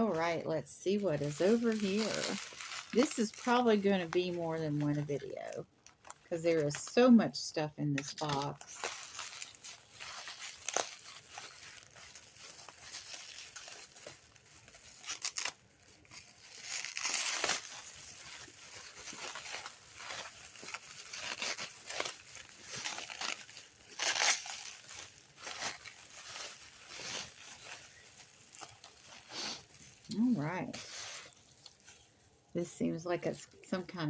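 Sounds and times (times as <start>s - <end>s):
packing material crinkling and tearing: 0.0s - 7.3s, 8.0s - 32.6s
packing material swishes: 1.2s - 4.0s.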